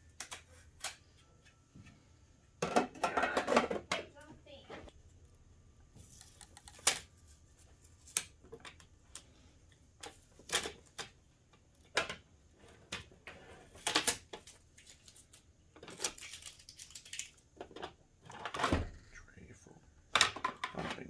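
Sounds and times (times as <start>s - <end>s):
plastic parts clicking and tapping: 0.1s - 1.6s, 8.0s - 18.9s, 20.1s - 21.0s.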